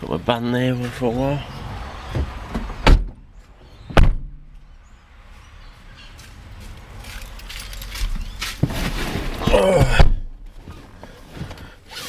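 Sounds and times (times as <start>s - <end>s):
car door shutting: 1.6s - 4.6s.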